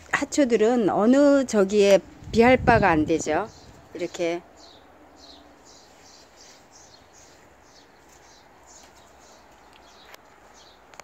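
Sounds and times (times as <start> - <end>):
small bird chirping: 2.8 - 11.0.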